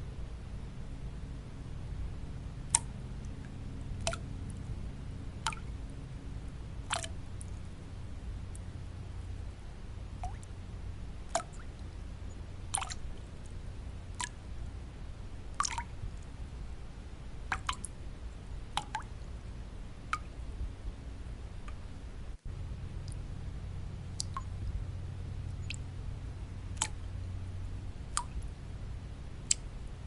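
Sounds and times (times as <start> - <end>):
white noise: 0.0 - 30.0
water drops plinking: 4.0 - 4.3, 5.4 - 5.7, 6.9 - 7.6, 11.3 - 11.6, 15.6 - 15.9, 17.5 - 17.9, 24.2 - 24.6, 28.1 - 28.4.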